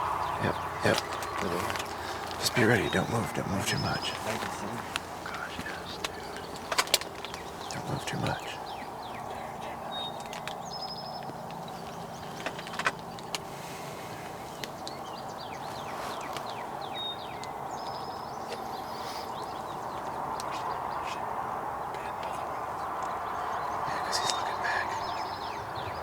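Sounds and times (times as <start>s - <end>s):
steady low rush: 0.0s - 10.2s
small birds chirping: 0.0s - 26.0s.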